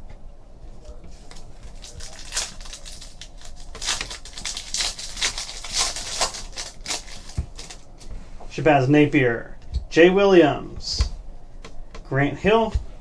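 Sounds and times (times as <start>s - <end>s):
foil wrapper and cards rustling: 1.2s - 8.1s.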